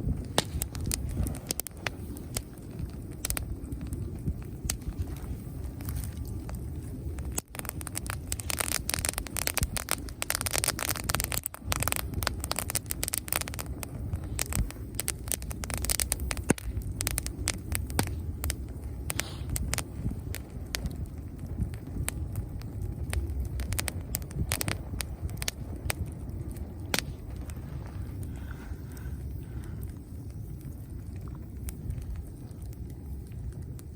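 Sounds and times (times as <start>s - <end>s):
bonfire crackling and popping: 0.0s - 33.9s
low fire rumble: 0.0s - 33.9s.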